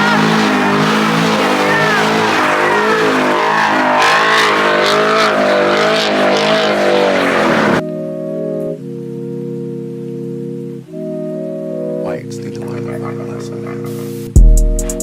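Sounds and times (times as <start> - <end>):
car engine revving: 0.0 - 7.8
tyres squealing: 0.0 - 7.8
held organ-like music chord: 7.8 - 15.0.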